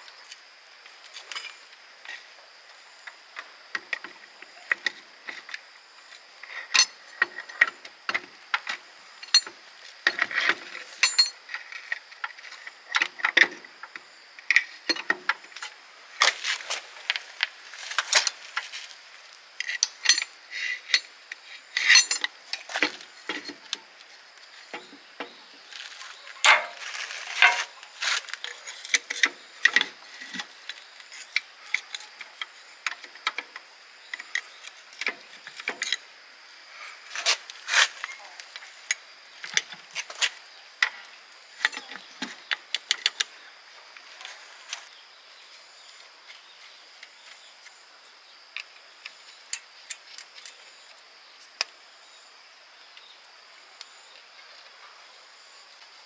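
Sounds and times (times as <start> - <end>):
metal tools and parts clinking: 6.7 - 7.4, 10.1 - 12.0, 19.6 - 23.6, 25.8 - 29.9.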